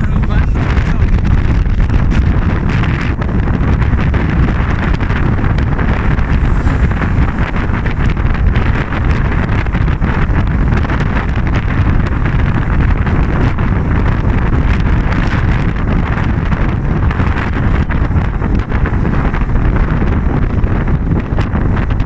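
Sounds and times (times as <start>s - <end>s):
low rumble of travel: 0.0s - 22.0s
wind buffeting microphone: 0.0s - 22.0s.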